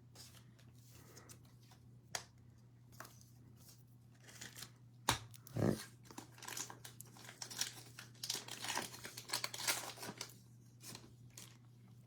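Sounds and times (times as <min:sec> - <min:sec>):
cellophane crinkling and tearing: 0:06.3 - 0:11.6.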